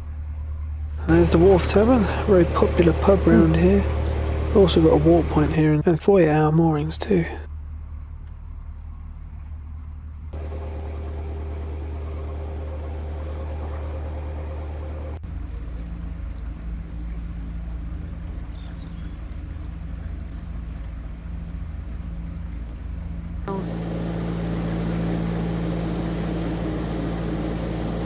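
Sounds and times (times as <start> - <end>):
diesel engine chugging: 1.0 - 7.5, 10.4 - 15.3, 23.5 - 28.0.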